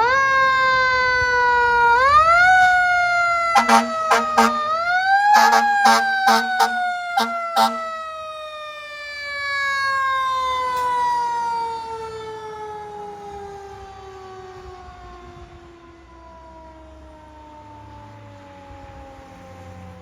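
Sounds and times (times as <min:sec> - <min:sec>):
fire truck siren wailing: 0:00.0 - 0:20.0
truck engine rumble: 0:01.4 - 0:13.8
air horn blasts: 0:03.4 - 0:08.2.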